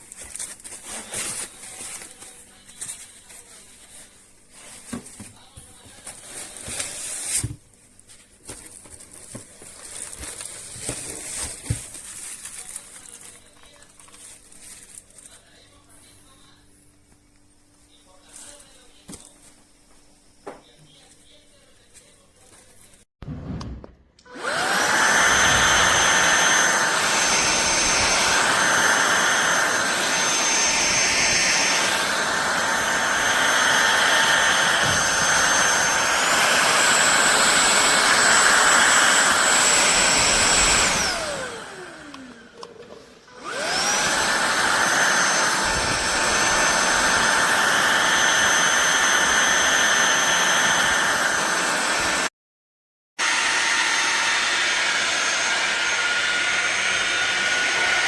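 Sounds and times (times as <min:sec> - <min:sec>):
vacuum cleaner motor whining: 0:24.2 - 0:52.3, 0:53.2 - 0:58.0.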